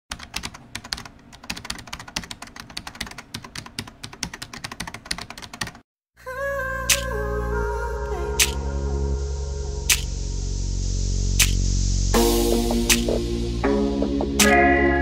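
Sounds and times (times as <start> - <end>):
rapid sharp clicks: 9.9 - 10.1, 11.4 - 11.6.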